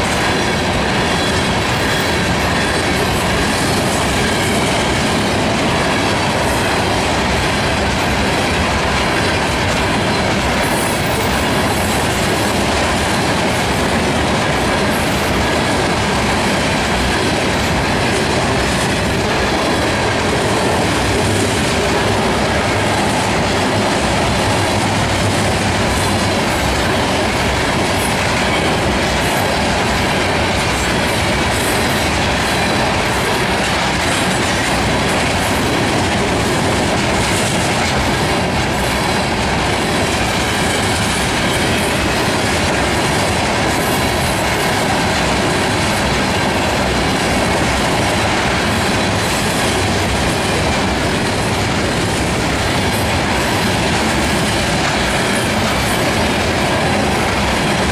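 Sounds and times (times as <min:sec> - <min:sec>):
train wheels rumbling on rail: 0:00.0 - 0:57.9.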